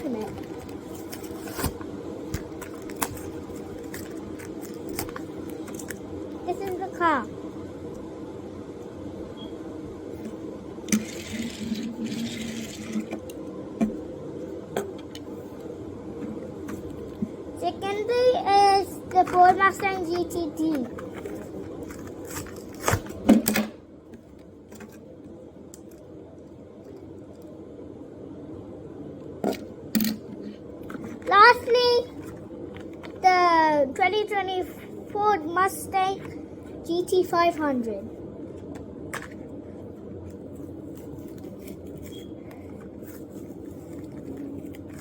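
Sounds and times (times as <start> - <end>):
plastic packaging crackling: 0.0 - 6.8, 19.2 - 23.3, 40.3 - 45.0
steady low hum: 0.0 - 45.0
plastic packaging clicks: 0.2 - 6.0.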